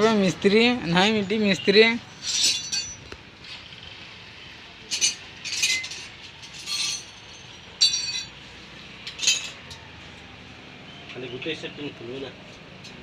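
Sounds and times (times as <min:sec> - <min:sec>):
metal tools clinking: 0:02.0 - 0:03.2, 0:04.8 - 0:09.9.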